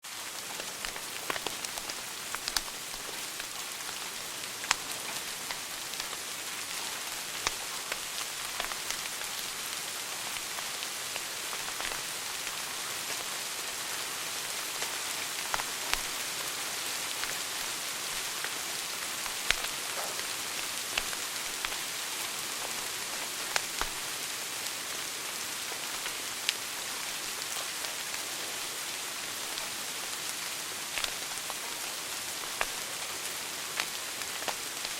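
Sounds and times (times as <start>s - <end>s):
wood fire crackling: 0.6s - 6.7s.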